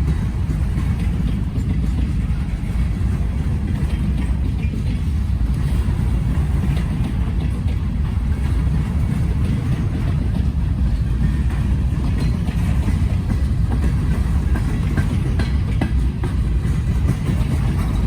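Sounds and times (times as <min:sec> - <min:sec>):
train wheels rumbling on rails: 0:00.0 - 0:18.0
clicks over rail joints: 0:00.1 - 0:18.0.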